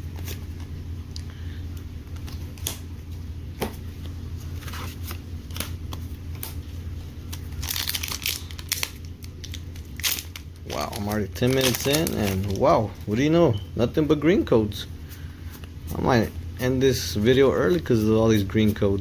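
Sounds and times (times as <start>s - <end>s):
steady low hum: 0.0s - 19.0s
cards clicking and flicking: 4.6s - 6.6s
foil wrapper crinkling and tearing: 7.2s - 13.1s.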